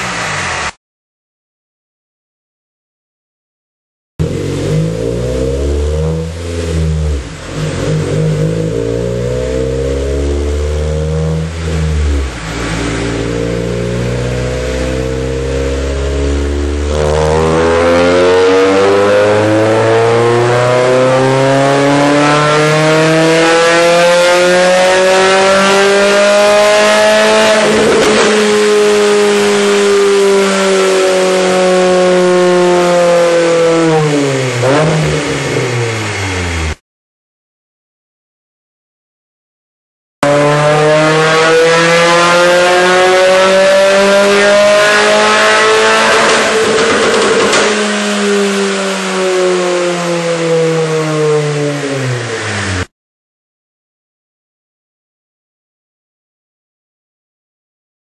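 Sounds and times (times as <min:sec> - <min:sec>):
car engine revving on dyno: 0:00.0 - 0:00.8, 0:04.2 - 0:36.8, 0:40.2 - 0:52.9.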